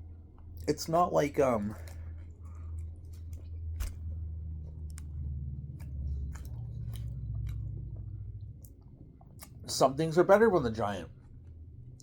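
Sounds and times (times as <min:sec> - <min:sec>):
person chewing: 0:01.7 - 0:09.6.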